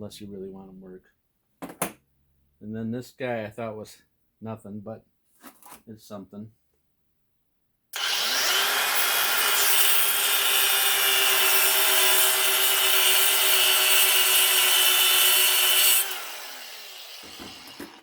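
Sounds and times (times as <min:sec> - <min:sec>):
power cutting tool whining: 0:08.0 - 0:18.0.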